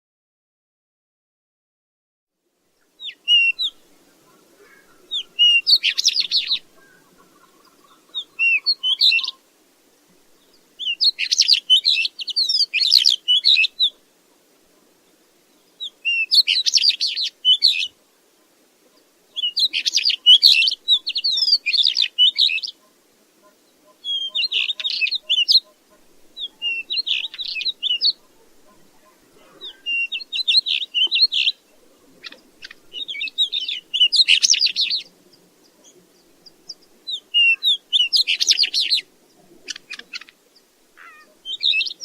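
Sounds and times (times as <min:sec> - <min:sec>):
bird singing scratchy phrases: 0:02.7 - 0:09.6, 0:10.2 - 0:14.1, 0:14.7 - 0:42.0.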